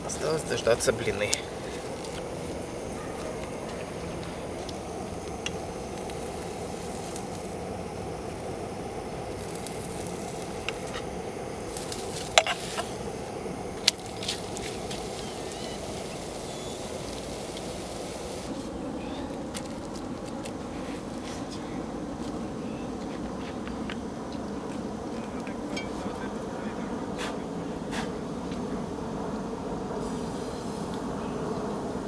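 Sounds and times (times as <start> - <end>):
gas burner running: 0.0 - 21.6, 29.7 - 32.0.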